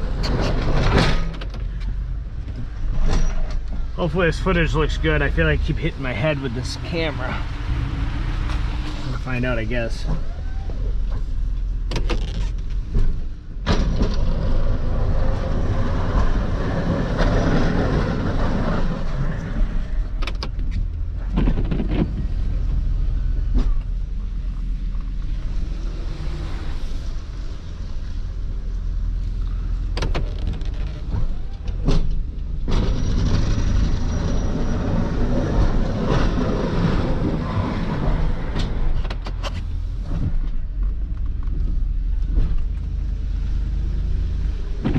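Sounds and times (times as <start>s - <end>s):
plow blade scraping pavement: 13.8s - 28.2s, 32.7s - 40.6s.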